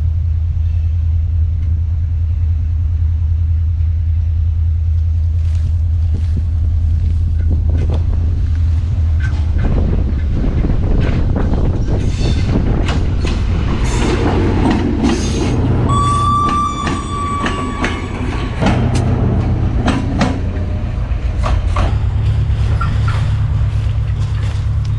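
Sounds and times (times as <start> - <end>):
train rumbling past: 0.0 - 24.9
wheels clacking over rails: 7.3 - 24.9
high squeal: 15.2 - 19.0.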